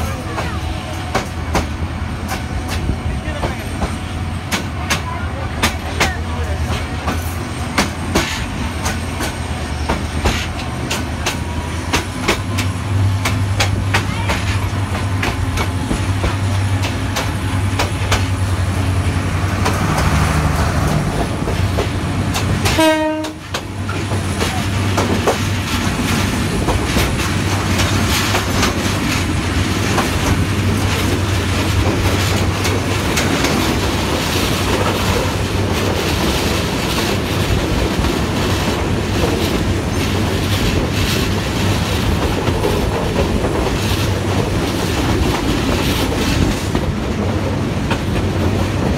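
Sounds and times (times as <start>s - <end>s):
train rumble: 0.0s - 48.9s
wheels clacking over rail joints: 0.0s - 48.9s
train horn toot: 22.6s - 23.6s.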